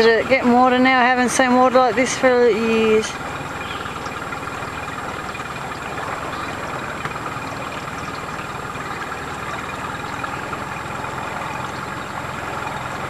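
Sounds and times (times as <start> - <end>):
boat outboard motor running: 0.0 - 13.0.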